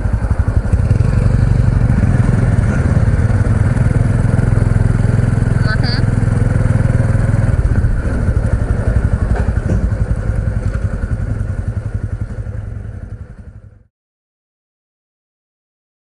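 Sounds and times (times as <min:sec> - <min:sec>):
motorcycle engine puttering: 0:00.0 - 0:13.9.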